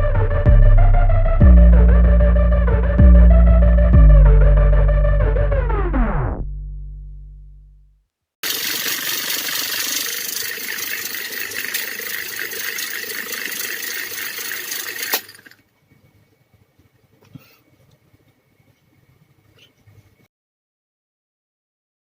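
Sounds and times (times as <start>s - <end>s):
electric fan motor running: 8.4s - 15.6s.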